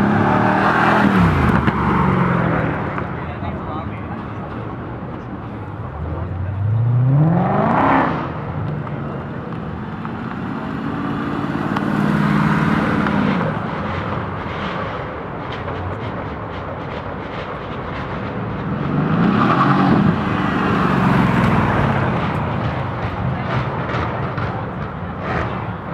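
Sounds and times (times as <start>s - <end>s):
car engine accelerating: 0.0s - 3.6s, 5.8s - 25.9s
car engine steady note: 20.0s - 25.9s.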